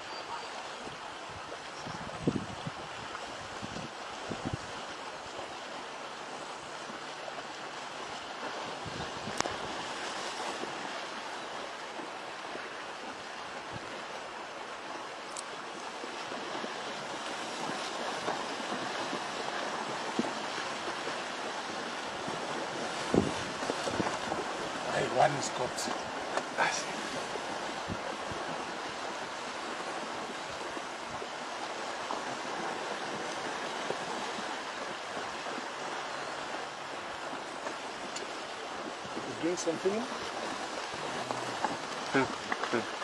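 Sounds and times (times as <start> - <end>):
faint clicks: 15.3 - 15.5.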